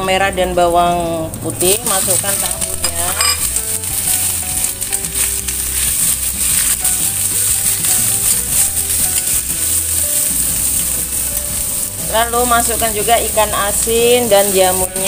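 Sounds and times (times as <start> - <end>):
food sizzling in hot oil: 0.0 - 15.0
metal spatula scraping wok: 2.1 - 11.0.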